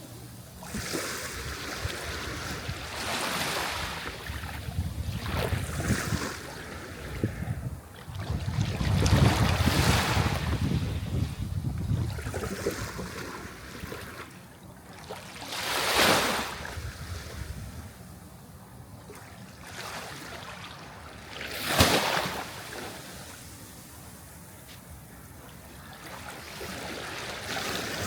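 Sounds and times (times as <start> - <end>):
surf washing: 0.0 - 18.0
sea waves crashing: 21.3 - 24.0.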